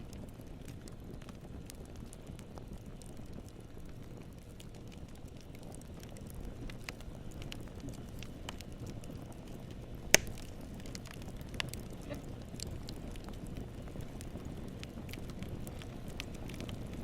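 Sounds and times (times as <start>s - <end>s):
campfire crackling: 0.0s - 17.0s
loud pop from fire: 10.0s - 12.7s.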